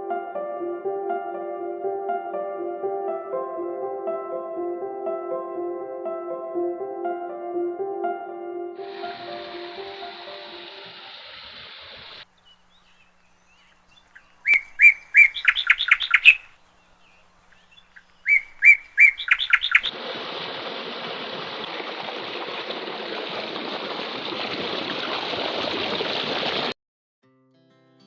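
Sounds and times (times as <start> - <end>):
bird chirping: 8.8 - 19.9.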